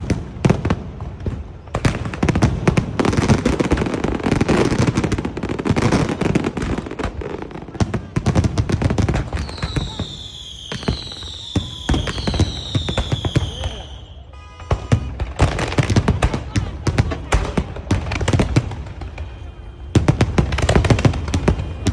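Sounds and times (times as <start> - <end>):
fireworks crackling and banging: 0.0 - 21.9
falling whistling tones: 9.4 - 14.4.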